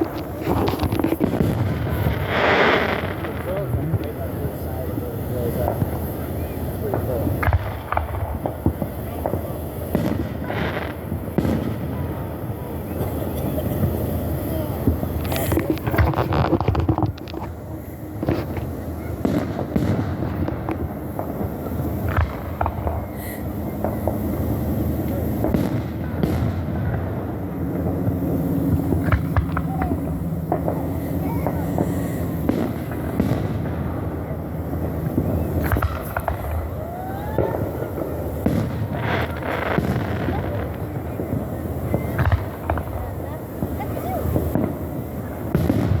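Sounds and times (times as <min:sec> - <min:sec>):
fireworks bangs and crackles: 0:00.0 - 0:46.0
low rumble of explosions: 0:00.0 - 0:46.0.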